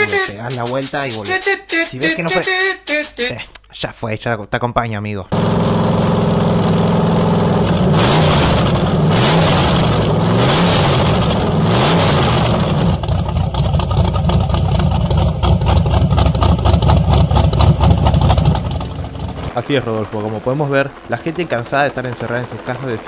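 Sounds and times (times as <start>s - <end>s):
small car engine sputtering: 5.3s - 23.0s
vee eight engine revving: 5.3s - 23.0s.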